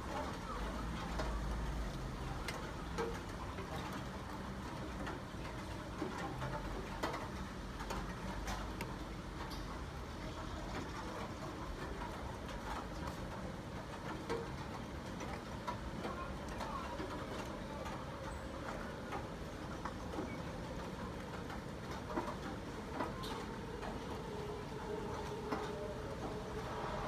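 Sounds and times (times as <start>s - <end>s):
rain falling: 0.0s - 27.0s.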